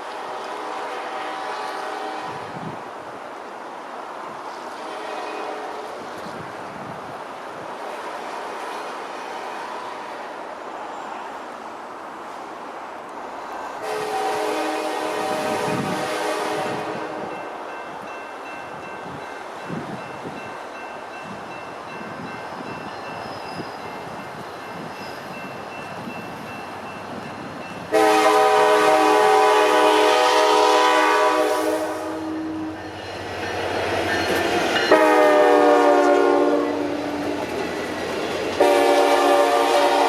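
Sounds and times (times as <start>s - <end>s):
locomotive air horn blasts: 0.2s - 2.5s, 4.8s - 5.9s, 13.8s - 17.5s, 27.9s - 32.8s, 34.9s - 37.1s, 38.6s - 40.0s.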